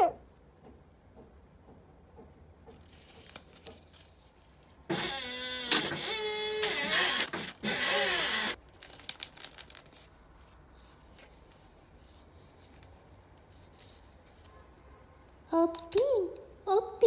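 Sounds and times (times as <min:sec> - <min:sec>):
plastic wrapping crinkling: 0:08.6 - 0:14.4.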